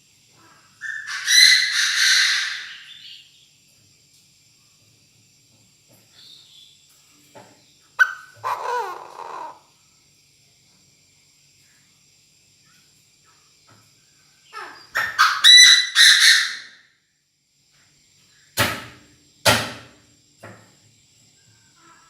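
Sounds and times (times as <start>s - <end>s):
bird giving harsh rasping call: 0.8s - 3.2s, 8.0s - 9.6s, 14.5s - 16.8s.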